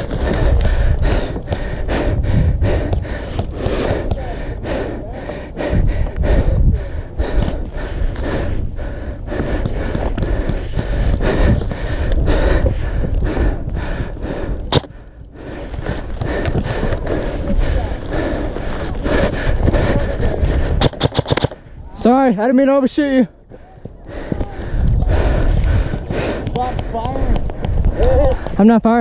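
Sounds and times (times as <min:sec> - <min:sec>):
person breathing hard: 0:00.0 - 0:21.8, 0:23.3 - 0:28.6
rumbling movement noise: 0:00.0 - 0:22.0, 0:23.3 - 0:28.6
quick running footfalls: 0:15.5 - 0:21.6, 0:23.5 - 0:28.8.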